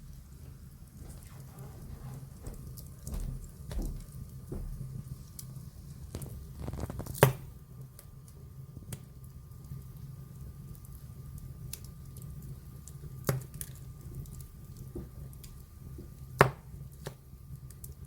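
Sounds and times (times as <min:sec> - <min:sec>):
wood fire crackling: 0:00.0 - 0:18.0
loud sharp fire pops: 0:06.1 - 0:07.6.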